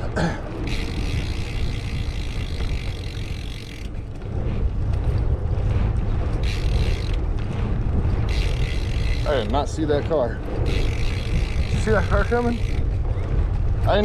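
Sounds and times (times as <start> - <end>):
wind rumbling on microphone: 0.0 - 14.0
bicycle ride hiss: 0.5 - 3.9, 6.4 - 9.8, 10.6 - 12.8.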